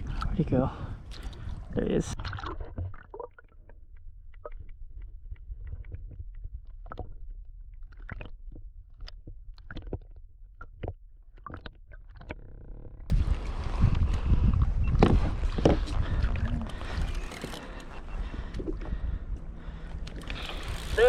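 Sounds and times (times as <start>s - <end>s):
clicks and knocks of fishing gear: 3.6s - 13.0s, 14.9s - 21.0s
low steady rumble: 13.1s - 21.0s.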